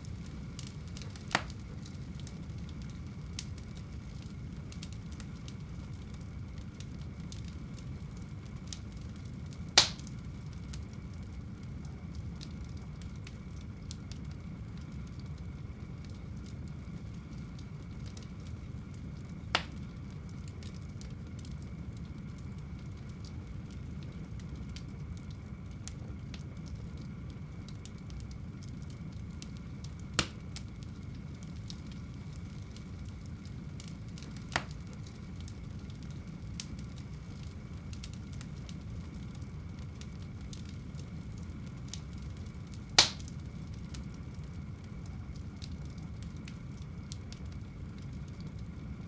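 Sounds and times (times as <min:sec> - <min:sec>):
sharp pops of burning wood: 0:00.0 - 0:06.8, 0:08.5 - 0:11.0, 0:19.2 - 0:21.6, 0:29.4 - 0:44.2
fire crackling: 0:00.0 - 0:49.0
fire flames rumbling: 0:00.0 - 0:49.0.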